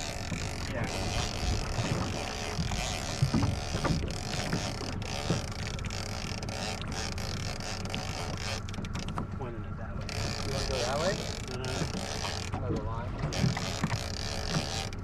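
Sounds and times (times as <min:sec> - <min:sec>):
wind buffeting microphone: 0:00.0 - 0:05.7
outboard motor running: 0:00.0 - 0:15.0.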